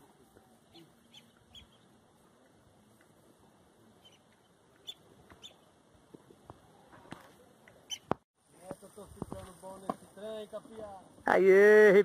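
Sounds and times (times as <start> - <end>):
faint bird chirps: 0.2 - 2.0, 3.9 - 5.7.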